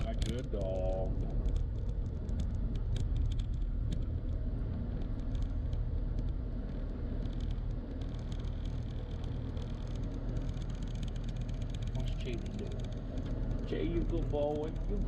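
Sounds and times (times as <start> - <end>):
car road rumble inside cabin: 0.0 - 15.0.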